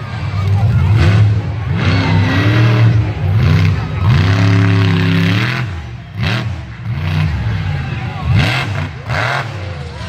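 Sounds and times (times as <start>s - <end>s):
truck engine revving: 0.0s - 10.0s.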